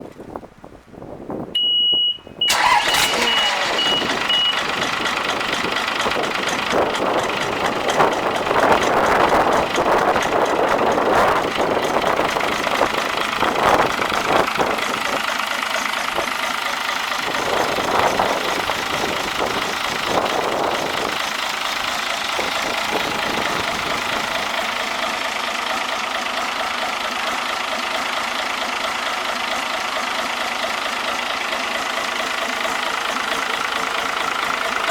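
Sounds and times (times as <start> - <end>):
high warning beep: 1.6 - 4.6
diesel engine starting and revving: 2.4 - 34.9.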